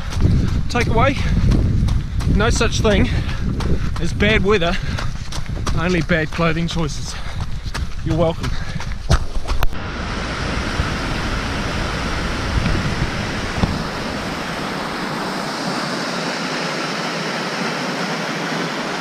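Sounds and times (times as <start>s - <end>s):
wind rumble on microphone: 0.0s - 15.5s
fast-flowing water rushing: 9.8s - 19.0s.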